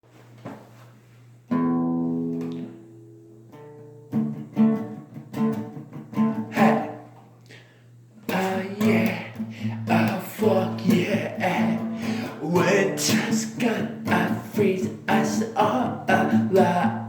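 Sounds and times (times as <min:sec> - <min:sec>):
guitar chord ringing: 0:01.5 - 0:07.2
plucked guitar notes: 0:01.5 - 0:07.2, 0:08.3 - 0:17.0.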